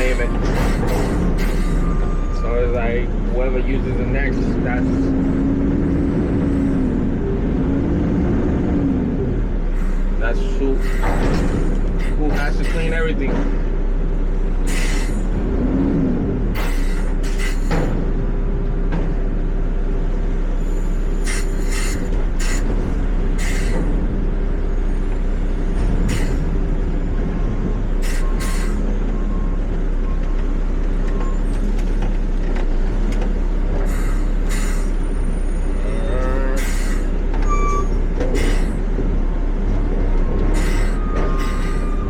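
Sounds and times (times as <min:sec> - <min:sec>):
truck engine running: 0:00.0 - 0:42.0
short air brake hisses: 0:10.8 - 0:12.9, 0:14.7 - 0:15.3, 0:16.6 - 0:17.9, 0:21.2 - 0:22.7, 0:23.4 - 0:23.8, 0:26.1 - 0:26.4, 0:28.0 - 0:28.8, 0:33.9 - 0:35.0, 0:36.6 - 0:38.8, 0:40.6 - 0:42.0.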